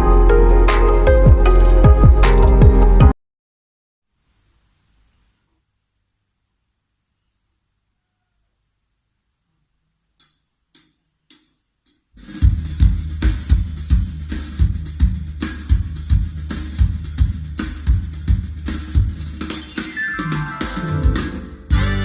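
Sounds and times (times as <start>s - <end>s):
drum kit with heavy kick drum: 0.0s - 3.1s, 12.2s - 22.0s.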